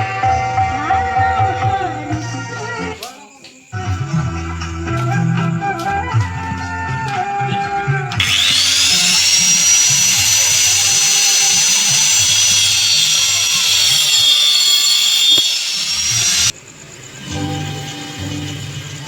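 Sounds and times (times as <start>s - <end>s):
power tool high-pitched whine: 8.2s - 16.6s.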